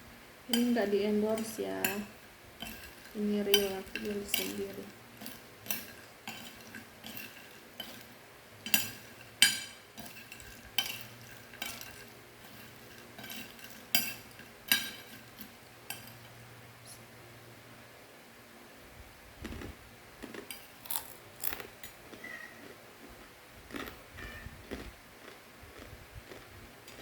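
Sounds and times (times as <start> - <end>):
utensil stirring crunchy dry snack: 0.5 - 16.4, 20.2 - 22.3.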